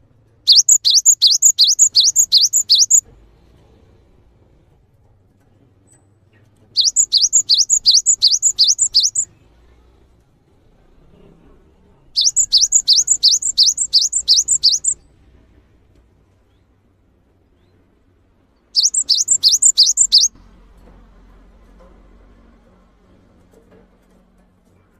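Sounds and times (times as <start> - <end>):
songbird chirping: 0.5 - 3.0, 6.8 - 9.3, 12.2 - 15.0, 18.8 - 20.3.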